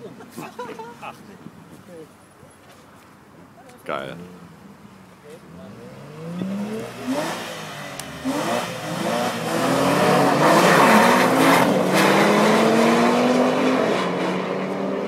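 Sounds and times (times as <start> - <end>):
sports car engines accelerating: 4.2 - 15.0.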